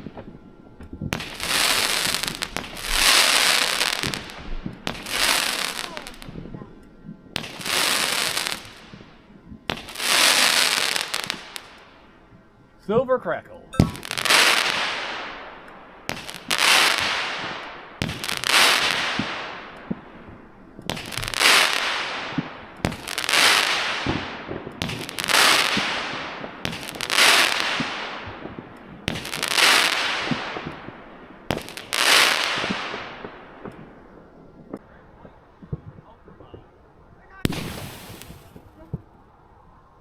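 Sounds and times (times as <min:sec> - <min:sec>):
firework crackling stars: 0:00.0 - 0:40.0
firework lift bangs: 0:37.4 - 0:38.8.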